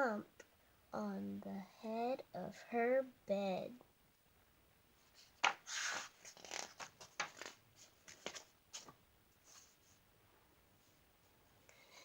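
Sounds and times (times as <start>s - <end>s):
paper rustling: 5.1s - 10.0s.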